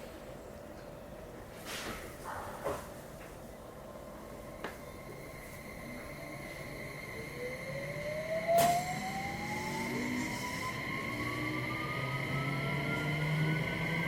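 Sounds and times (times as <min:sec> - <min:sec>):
electric train motors whining: 0:04.1 - 0:14.0.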